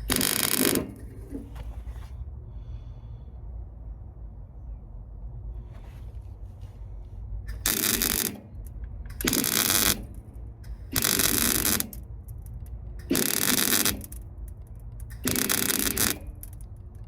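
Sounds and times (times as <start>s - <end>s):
welder bursts: 0.0s - 1.4s, 7.5s - 16.7s.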